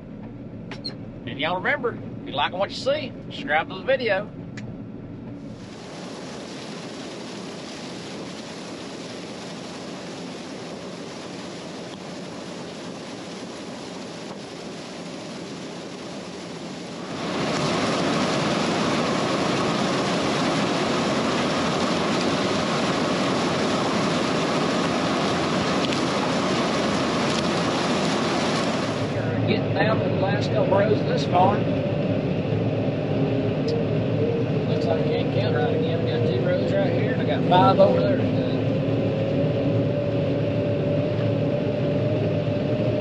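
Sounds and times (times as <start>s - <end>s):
combine harvester drone: 0.0s - 43.0s.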